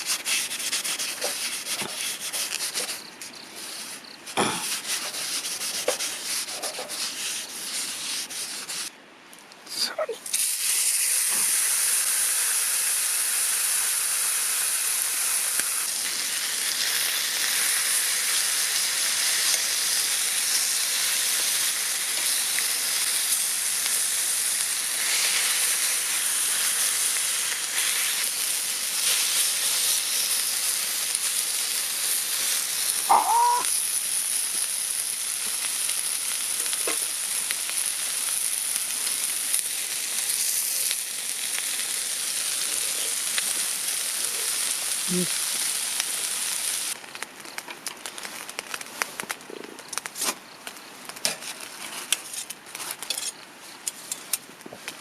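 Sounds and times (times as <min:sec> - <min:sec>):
food sizzling in a pan: 0:00.0 - 0:03.1, 0:10.2 - 0:47.6.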